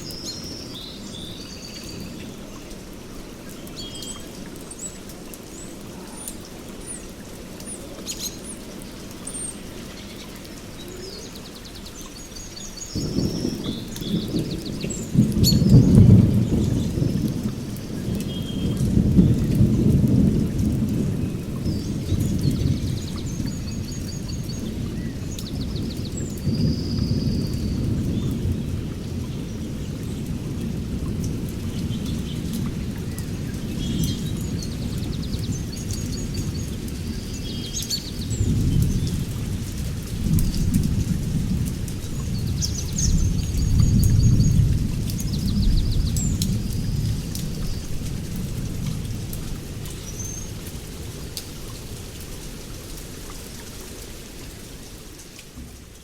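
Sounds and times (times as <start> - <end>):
songbirds chirping: 0.0 - 48.7
rolling thunder rumble: 12.8 - 51.3.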